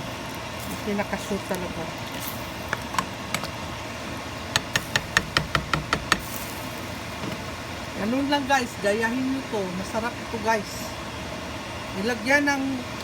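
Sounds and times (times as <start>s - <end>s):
steady background noise: 0.0s - 13.0s
sharp knocks: 4.6s - 6.4s.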